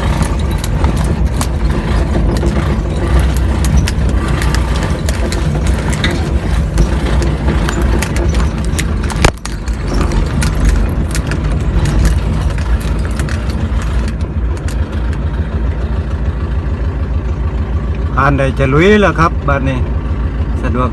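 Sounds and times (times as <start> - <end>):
rattling and clicking: 0.0 - 15.9
truck engine drone: 0.0 - 20.9.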